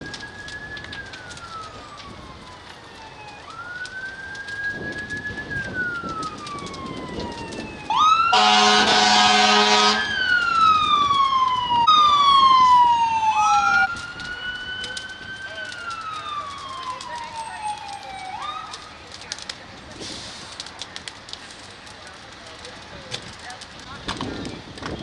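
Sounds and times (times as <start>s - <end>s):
emergency vehicle siren wailing: 0.0s - 25.0s
loud horn blast: 8.3s - 10.1s.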